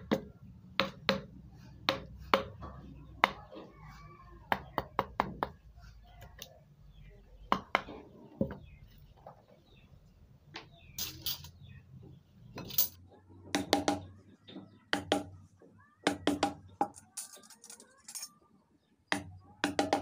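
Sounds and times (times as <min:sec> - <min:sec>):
mallet striking carving chisel: 0:00.0 - 0:01.3.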